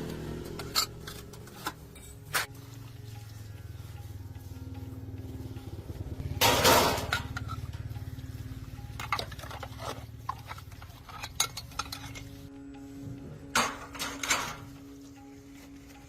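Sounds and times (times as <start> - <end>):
low engine-like hum: 0.0 - 13.5
metal tools clinking: 0.6 - 2.5, 9.0 - 12.4, 13.6 - 14.7.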